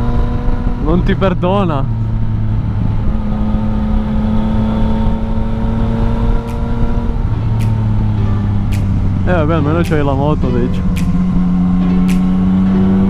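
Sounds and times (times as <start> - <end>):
faint short clicks: 12.0 - 12.4.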